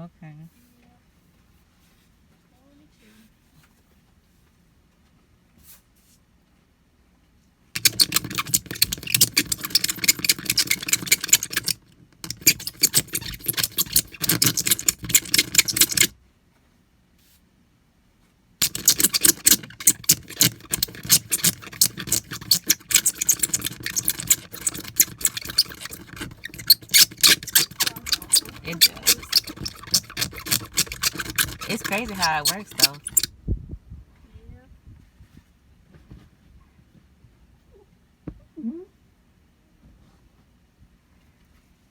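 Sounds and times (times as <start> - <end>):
razor blade scraping glass: 7.8 - 16.1, 18.6 - 33.3.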